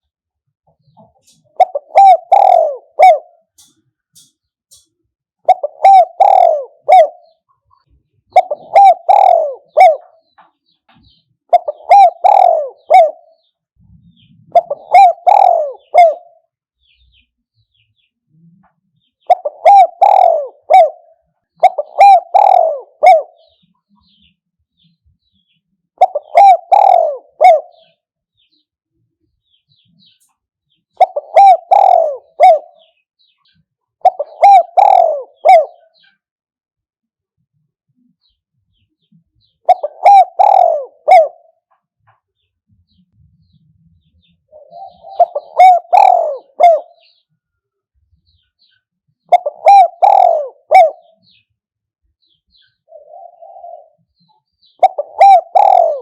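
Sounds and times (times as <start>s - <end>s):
dove cooing: 0.8s - 10.4s, 11.0s - 17.0s, 18.3s - 24.2s, 26.0s - 28.0s, 30.9s - 33.3s, 34.0s - 36.2s, 39.4s - 41.7s, 44.2s - 47.3s, 49.2s - 51.5s, 52.5s - 56.0s.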